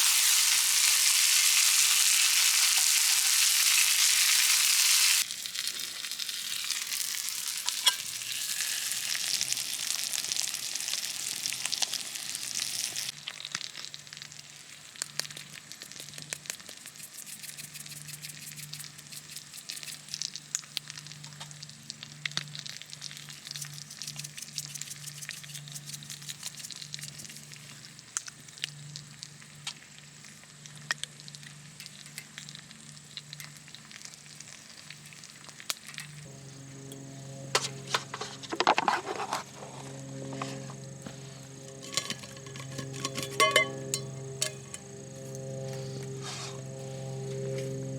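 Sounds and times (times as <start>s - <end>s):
food sizzling in a hot pan: 0.0s - 16.6s.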